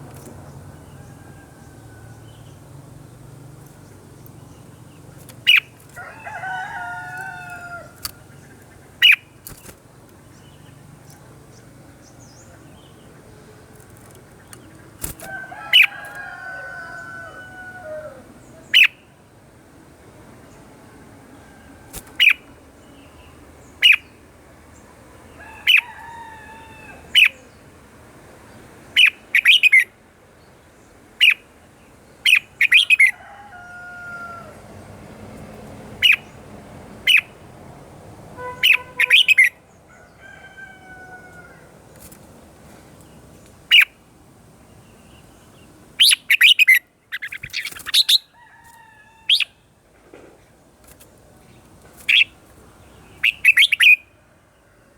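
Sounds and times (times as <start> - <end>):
birds singing and chirping: 0.0 - 19.1, 21.3 - 27.7, 28.5 - 29.9, 30.8 - 33.2, 35.9 - 37.4, 38.4 - 44.0, 44.6 - 49.7, 50.4 - 54.1.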